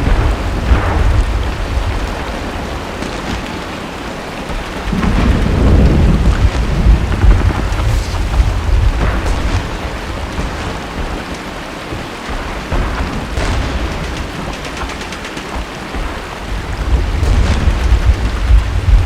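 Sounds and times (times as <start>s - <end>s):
heavy rain: 0.0s - 19.0s
deep low rumble: 4.9s - 9.9s, 16.8s - 19.0s.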